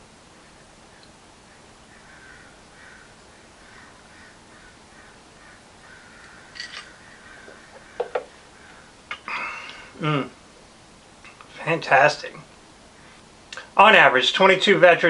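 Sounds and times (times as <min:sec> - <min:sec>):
faint bird calls: 0:00.3 - 0:10.2
sharp knocks: 0:07.4 - 0:08.3.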